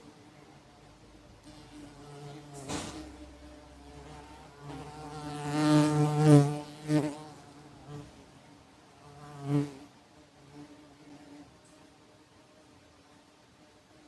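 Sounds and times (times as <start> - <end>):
wasp wings buzzing: 1.4 - 8.1.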